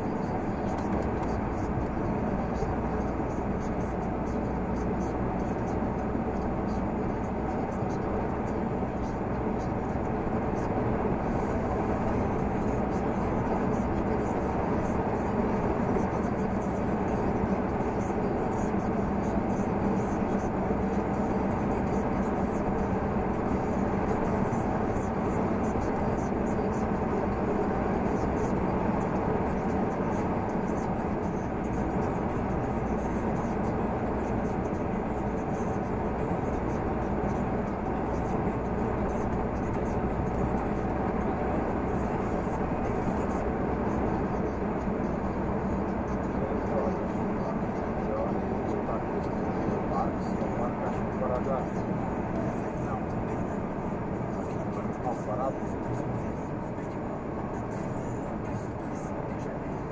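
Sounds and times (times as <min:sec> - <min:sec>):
road noise: 0:00.0 - 0:59.9
truck diesel engine running: 0:00.0 - 0:59.9.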